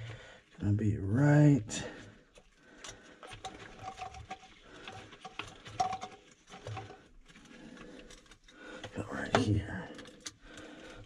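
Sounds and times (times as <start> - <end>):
hands clicking and scraping pump parts: 0.0 - 0.6, 1.9 - 11.0.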